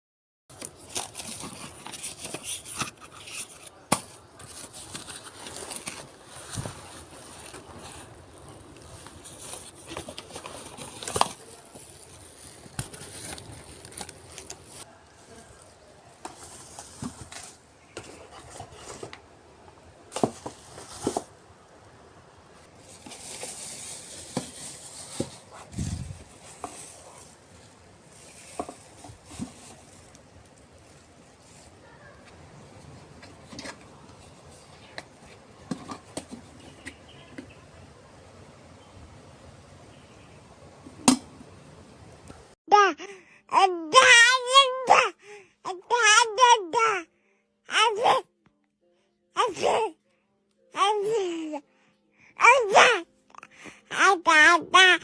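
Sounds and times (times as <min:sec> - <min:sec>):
crinkling and rustling handling: 0:00.5 - 0:37.6.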